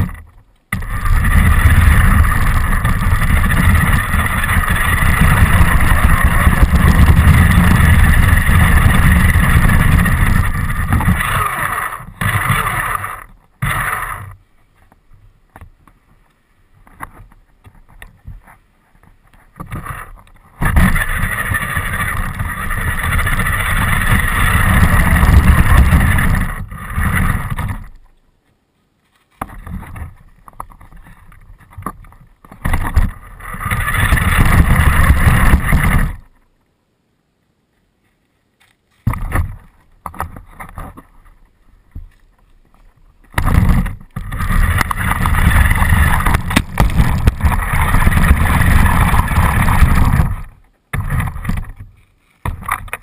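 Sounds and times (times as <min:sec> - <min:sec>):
wind on microphone: 0:00.0 - 0:14.4, 0:16.9 - 0:28.1, 0:29.4 - 0:36.3, 0:43.3 - 0:53.0
rc car running: 0:00.8 - 0:14.3, 0:20.6 - 0:27.9, 0:32.7 - 0:36.3, 0:43.4 - 0:50.5.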